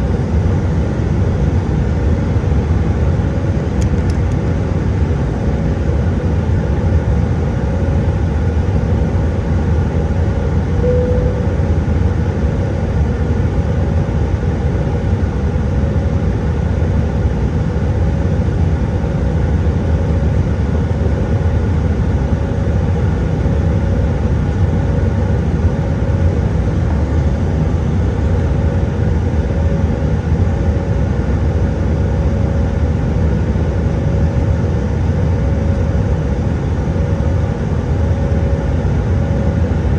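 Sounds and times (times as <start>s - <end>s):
faint steady hum: 0.0s - 17.4s
airplane cabin engine drone: 0.0s - 39.9s.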